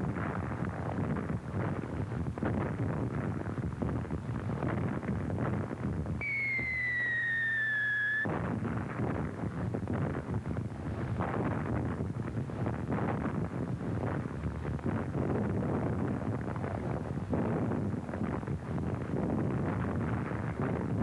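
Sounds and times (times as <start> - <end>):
shell whistle falling in pitch: 6.2 - 8.3.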